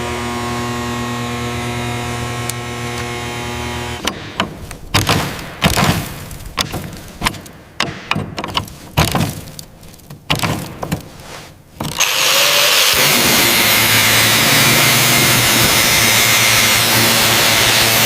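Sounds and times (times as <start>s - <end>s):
power tool whirring: 0.0s - 4.1s, 11.8s - 18.0s
sharp knocks and clicks: 4.0s - 12.1s.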